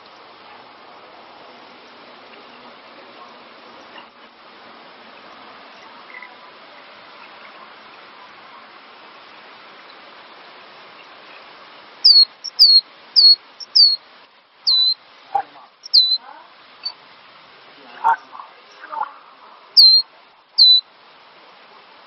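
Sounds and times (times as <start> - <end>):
faint hiss: 0.0 - 22.0
bird whistled notes: 12.0 - 14.0, 14.7 - 15.0, 15.8 - 16.2, 19.8 - 20.0, 20.6 - 20.8.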